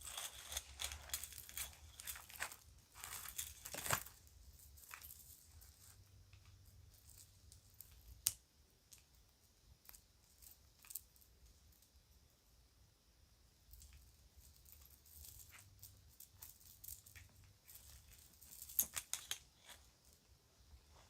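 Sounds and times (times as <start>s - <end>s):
faint rustling: 0.0s - 7.6s.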